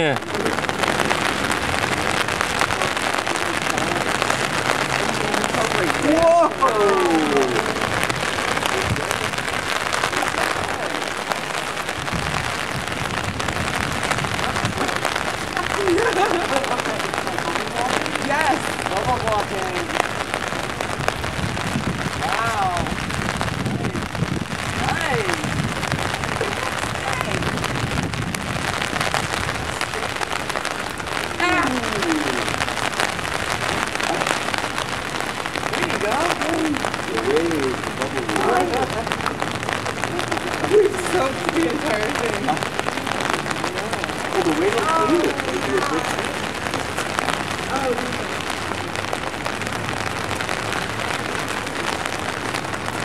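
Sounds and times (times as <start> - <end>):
rain on a rooftop: 0.0 - 53.0
sharp raindrop ticks: 0.2 - 53.0
person exclaiming: 5.9 - 7.8, 31.4 - 32.5.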